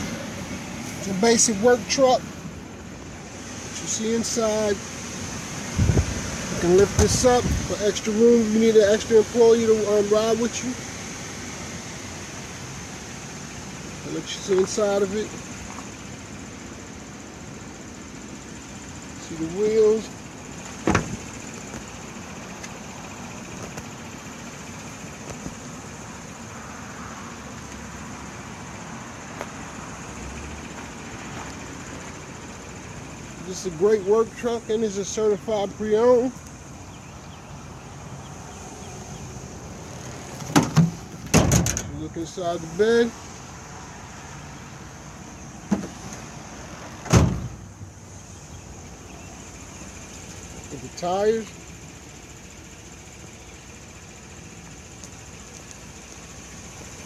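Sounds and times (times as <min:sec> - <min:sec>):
engine idling: 0:00.0 - 0:57.0
tailgate thudding onto stops: 0:06.7 - 0:07.6, 0:20.7 - 0:21.8, 0:40.1 - 0:41.9, 0:45.6 - 0:46.2, 0:47.0 - 0:47.7
tailgate latch knock: 0:20.8 - 0:21.2, 0:40.4 - 0:41.8.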